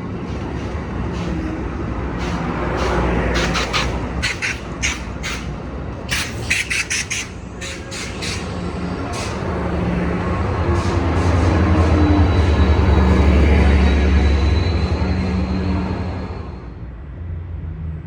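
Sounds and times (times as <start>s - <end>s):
diesel locomotive engine rumble: 0.0s - 18.0s
short sharp squeaks: 6.1s - 8.6s.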